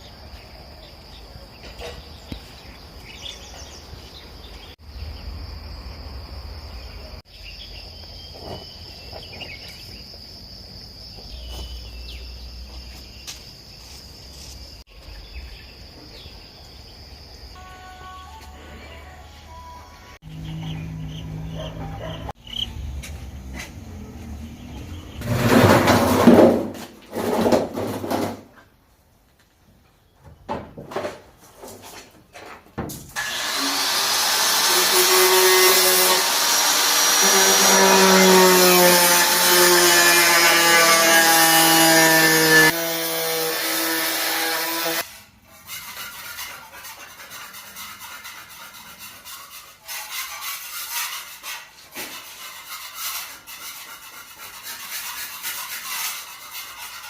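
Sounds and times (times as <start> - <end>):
knocks and scraping: 1.5 - 4.8, 8.0 - 15.2, 20.4 - 33.6, 43.4 - 57.0
power tool running: 33.2 - 45.0.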